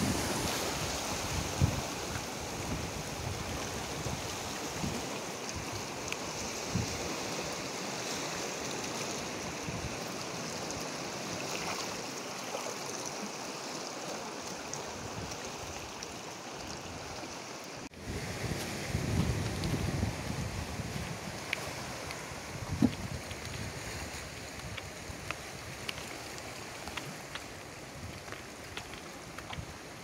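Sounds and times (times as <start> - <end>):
seawater rushing between rocks: 0.0 - 30.0.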